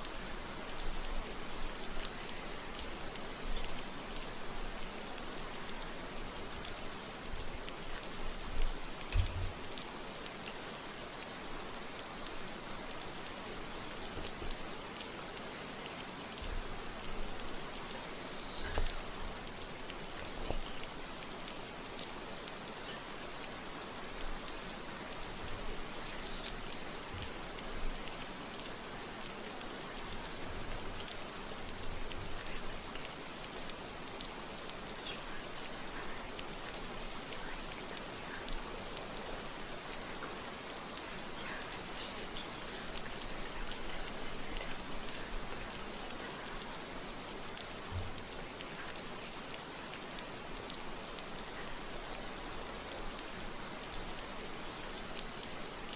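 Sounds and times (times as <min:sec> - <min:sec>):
rain hissing: 0:00.0 - 0:55.9
drop ticks: 0:09.1 - 0:09.9.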